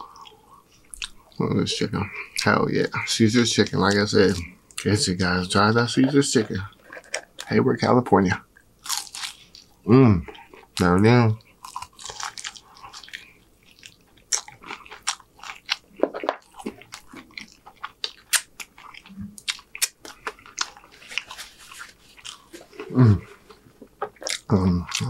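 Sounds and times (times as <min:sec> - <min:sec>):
chewing and crunching food: 0:00.0 - 0:05.0, 0:05.9 - 0:07.6, 0:08.6 - 0:25.0
person humming mm: 0:22.8 - 0:23.4.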